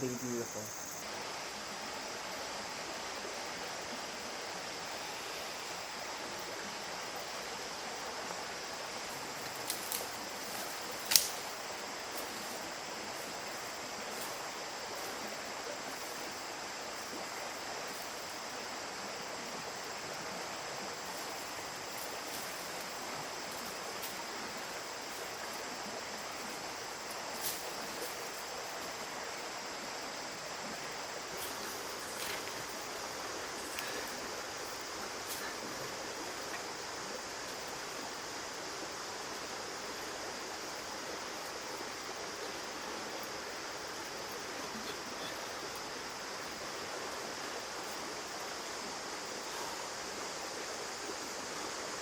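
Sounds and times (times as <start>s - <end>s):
creek water running: 0.0s - 52.0s
high-pitched hiss: 0.0s - 52.0s
faint ticks: 9.4s - 11.5s, 33.6s - 35.6s.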